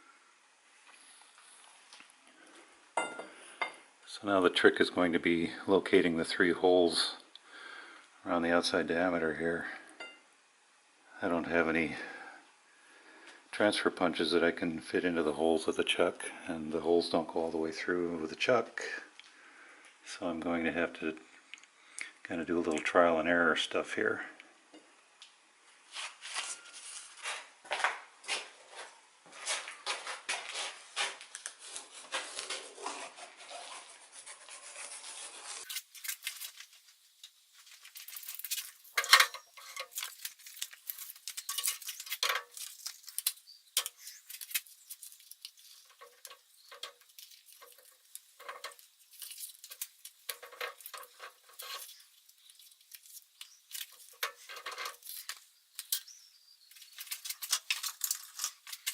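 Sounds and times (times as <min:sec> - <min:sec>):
metal tools clinking on workbench: 0:38.4 - 0:40.1, 0:40.9 - 0:42.7.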